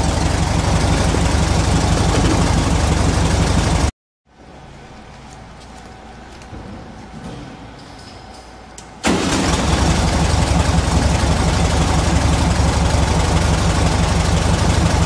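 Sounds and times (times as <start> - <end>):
car engine idling: 0.0 - 3.9, 9.1 - 15.0.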